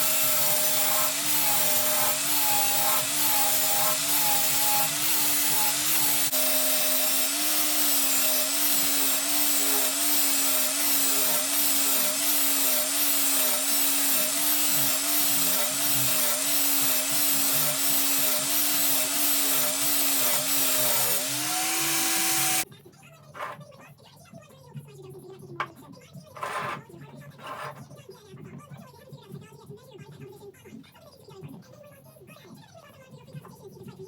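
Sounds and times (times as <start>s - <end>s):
power tool cutting metal: 0.0s - 22.6s.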